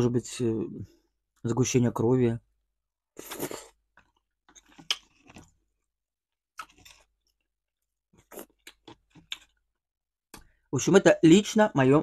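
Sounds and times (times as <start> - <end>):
person chewing food: 3.2 - 10.6.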